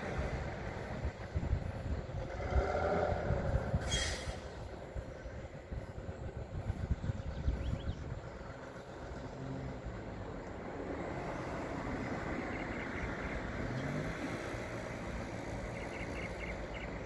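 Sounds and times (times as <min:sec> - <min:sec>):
truck engine droning: 0:00.0 - 0:17.0.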